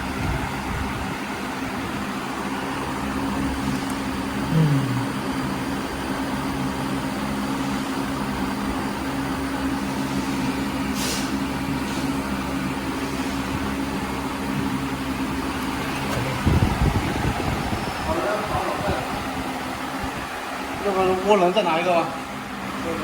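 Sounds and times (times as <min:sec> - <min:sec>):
machine humming: 0:00.0 - 0:10.0
short hiss: 0:11.0 - 0:11.4.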